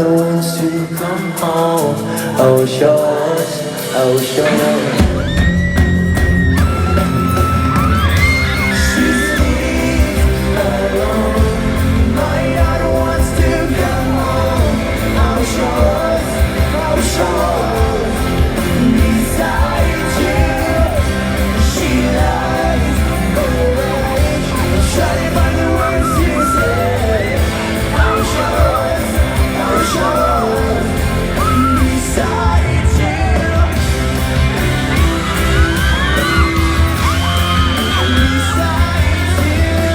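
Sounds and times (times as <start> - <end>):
live pop-rock band playing: 0.0 - 39.9
person singing: 0.0 - 39.9
crowd yelling: 4.4 - 39.9.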